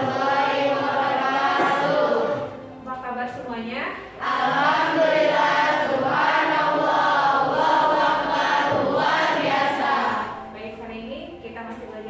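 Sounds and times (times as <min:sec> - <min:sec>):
students reciting in unison: 0:00.0 - 0:02.8, 0:04.0 - 0:10.5.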